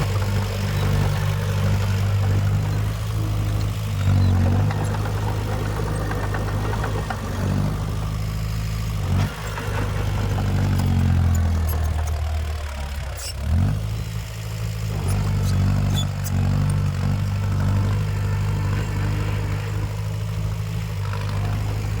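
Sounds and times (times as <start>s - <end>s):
heavy diesel engine under load: 0.0s - 22.0s.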